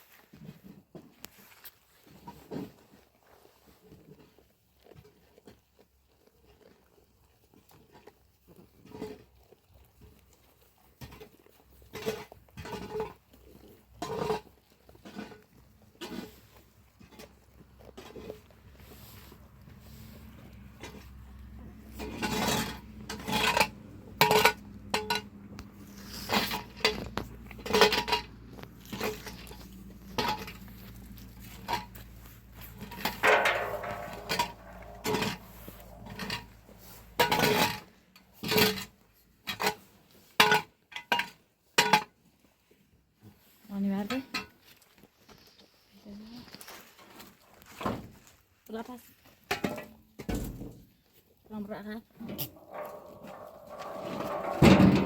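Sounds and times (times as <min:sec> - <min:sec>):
metal pots and dishes clanking: 0:32.9 - 0:37.7, 0:52.2 - 0:55.0
light knocks and rustles: 0:52.2 - 0:55.0.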